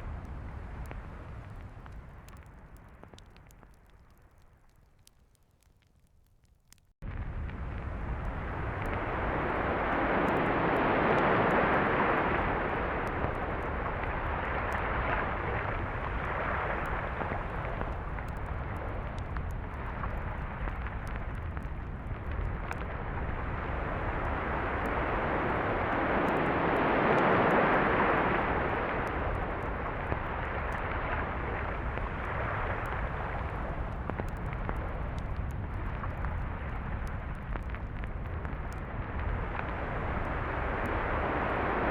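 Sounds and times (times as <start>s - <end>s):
low rumble: 7.0s - 41.9s
waves breaking on a beach: 9.0s - 14.0s, 23.6s - 30.0s.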